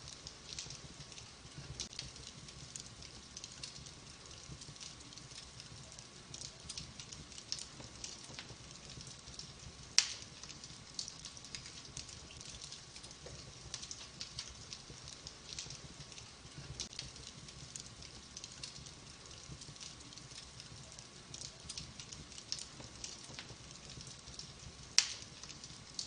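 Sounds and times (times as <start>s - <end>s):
wood fire crackling: 0.0s - 26.0s
loud sharp pop of fire: 10.0s - 10.3s, 25.0s - 25.3s.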